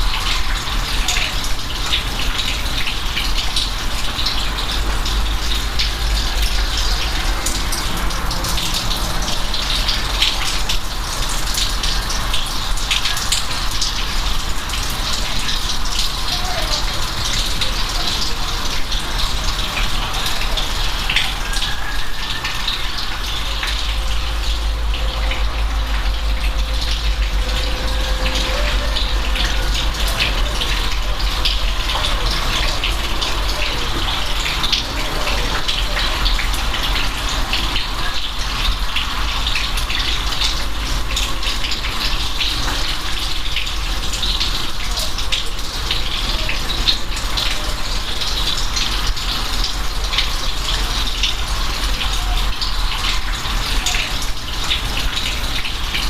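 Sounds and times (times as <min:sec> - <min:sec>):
rain: 0:00.0 - 0:56.0
low steady rumble: 0:23.3 - 0:33.1.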